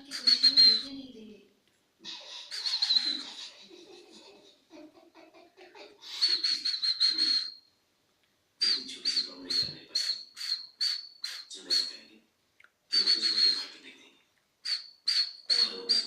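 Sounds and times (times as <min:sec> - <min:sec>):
cockatiel chirping: 0:00.0 - 0:01.0, 0:02.1 - 0:04.3, 0:06.0 - 0:07.6, 0:08.6 - 0:12.0, 0:12.9 - 0:13.7, 0:14.6 - 0:16.0.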